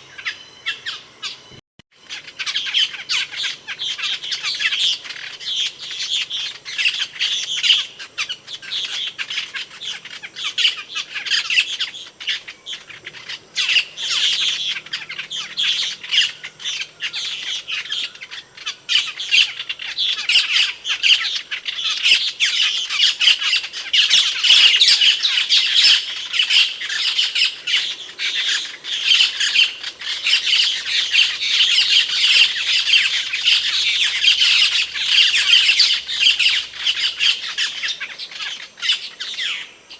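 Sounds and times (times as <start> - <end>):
starling calling: 0.0 - 39.9.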